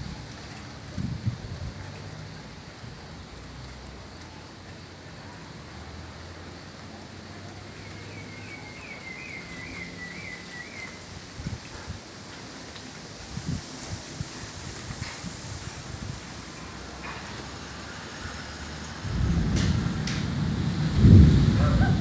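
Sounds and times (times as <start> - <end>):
rain hissing: 0.0 - 22.0
wind: 0.0 - 22.0
low rumble: 19.0 - 22.0.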